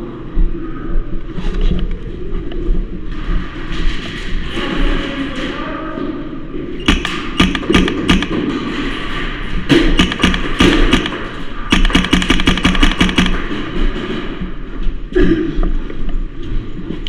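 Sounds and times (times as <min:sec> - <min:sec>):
airsoft gun single shots: 0:06.9 - 0:08.5, 0:09.8 - 0:13.6
airsoft gun automatic burst: 0:06.9 - 0:08.8, 0:09.8 - 0:13.8.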